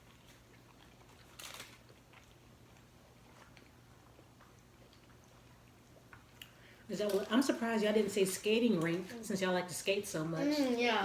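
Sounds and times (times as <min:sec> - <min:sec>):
people chewing: 0:00.0 - 0:06.7.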